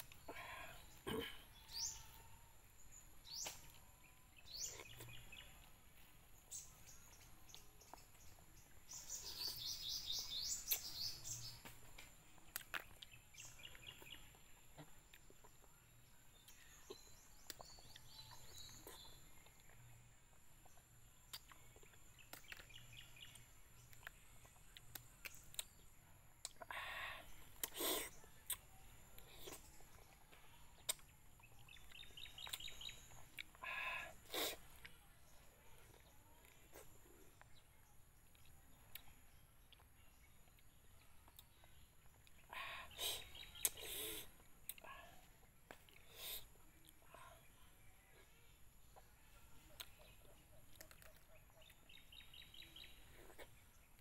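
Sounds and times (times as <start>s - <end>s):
birds chirping and singing: 0.0s - 12.1s, 12.9s - 19.9s, 26.7s - 34.2s, 39.7s - 45.2s, 49.8s - 54.0s.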